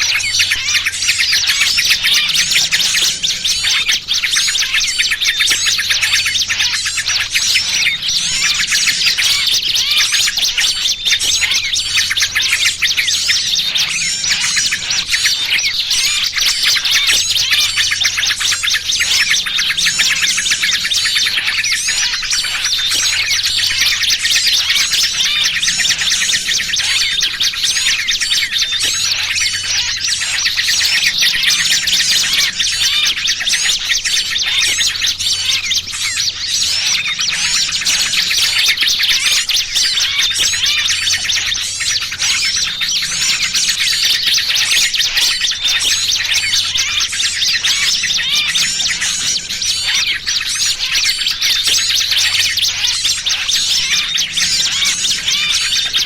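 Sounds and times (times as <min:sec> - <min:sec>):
bird distress calls: 0:00.0 - 0:56.0
small songbirds chattering: 0:00.0 - 0:56.0.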